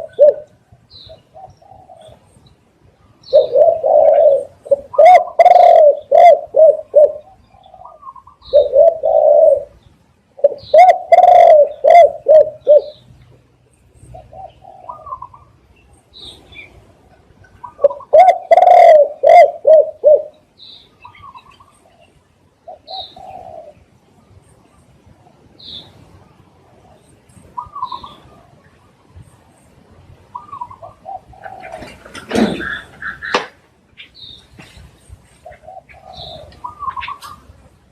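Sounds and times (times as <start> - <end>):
dove cooing: 0.0 - 2.4, 3.2 - 9.8, 10.4 - 13.0, 14.1 - 15.6, 17.1 - 20.4, 21.0 - 23.9, 27.6 - 28.6, 30.3 - 33.5, 35.4 - 37.6
small birds chirping: 0.0 - 37.9.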